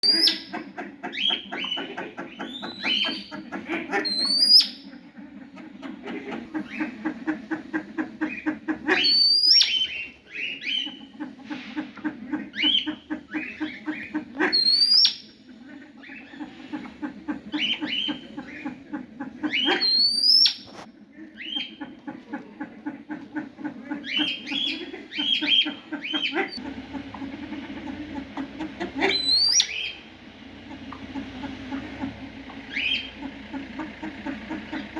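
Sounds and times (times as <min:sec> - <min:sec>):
birds calling repeated notes: 0:00.0 - 0:34.9
sharp rising bird whistle: 0:29.2 - 0:30.0.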